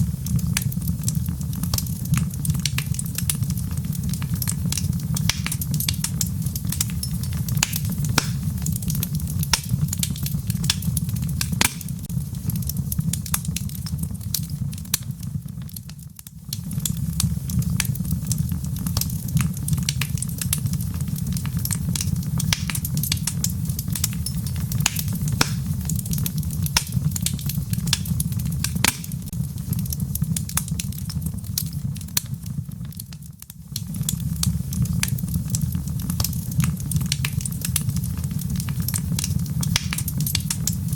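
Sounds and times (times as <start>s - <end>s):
rain pattering: 0.0s - 40.9s
wood fire crackling: 0.0s - 40.9s.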